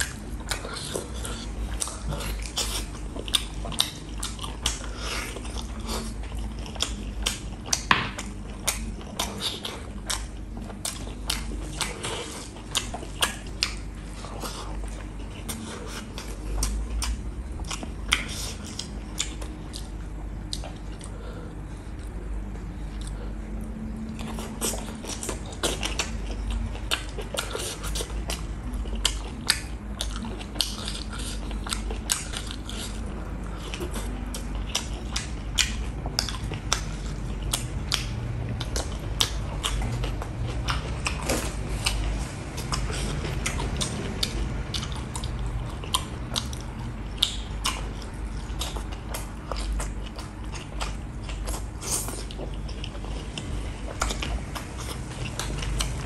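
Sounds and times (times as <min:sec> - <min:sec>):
chewing and mouth smacking: 0:00.0 - 0:56.0
low steady hum: 0:00.0 - 0:56.0.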